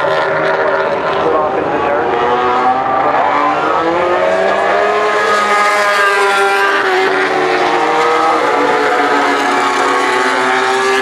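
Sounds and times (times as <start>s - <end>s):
racing motorcycles passing: 0.0s - 11.0s.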